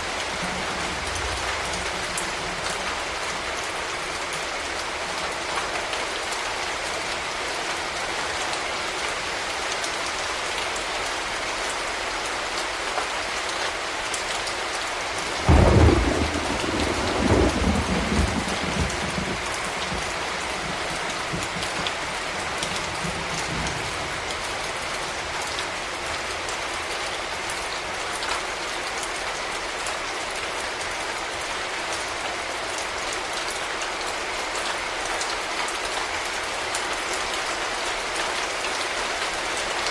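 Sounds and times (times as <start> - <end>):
steady rain: 0.0 - 39.9
thunderclap and rumble: 15.4 - 24.3.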